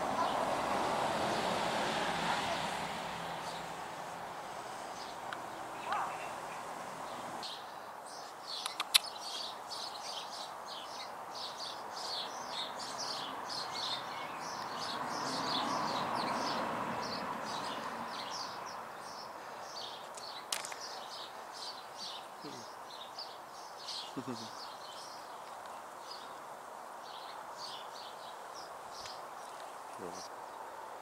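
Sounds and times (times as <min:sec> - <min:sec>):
small birds chirping: 0:00.0 - 0:31.0
sharp clicks: 0:08.6 - 0:09.2.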